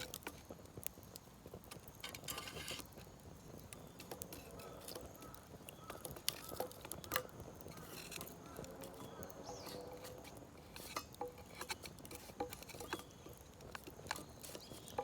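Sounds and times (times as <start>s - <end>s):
wood fire popping and clicking: 0.0s - 15.0s.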